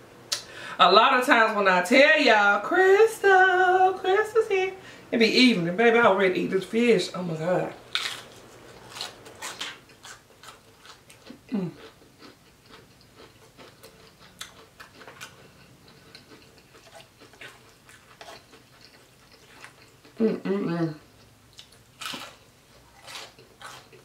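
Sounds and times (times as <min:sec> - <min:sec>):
person chewing crispy fish: 0:07.9 - 0:20.3, 0:21.0 - 0:24.0
person humming: 0:11.5 - 0:11.8, 0:20.2 - 0:21.0.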